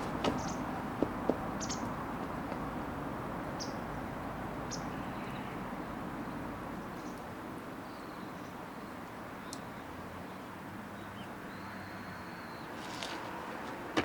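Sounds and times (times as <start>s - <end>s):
small bird chirping: 1.6s - 1.9s.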